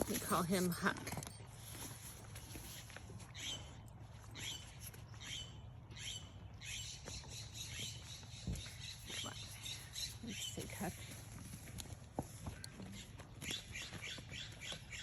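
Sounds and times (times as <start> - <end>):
small bird calling: 4.4 - 11.2.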